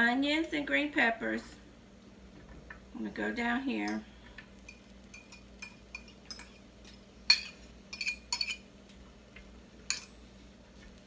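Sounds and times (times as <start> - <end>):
metal fork clinking on pan: 4.7 - 8.7, 9.9 - 10.2.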